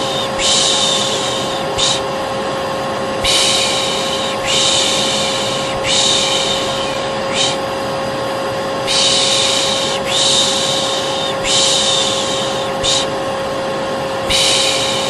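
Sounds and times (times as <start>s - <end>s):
rhythmic shushing voice: 0.0s - 2.1s, 3.2s - 13.2s
hair dryer running: 0.0s - 15.0s.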